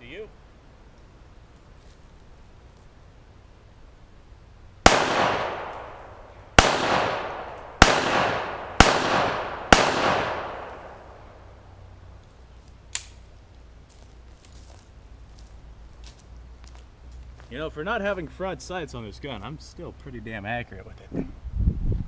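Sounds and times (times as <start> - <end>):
gunshots with echoing decay: 4.8 - 11.6.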